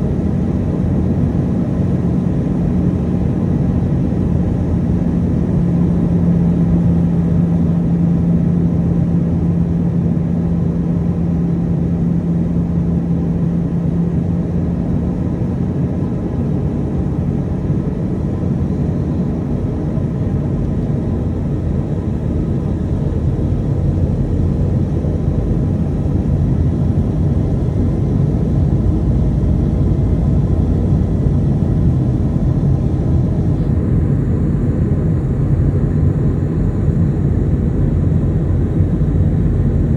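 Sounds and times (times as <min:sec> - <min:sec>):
airflow rushing in aircraft cabin: 0:00.0 - 0:39.9
jet engine drone: 0:00.0 - 0:39.9
strong low hum: 0:19.5 - 0:39.9.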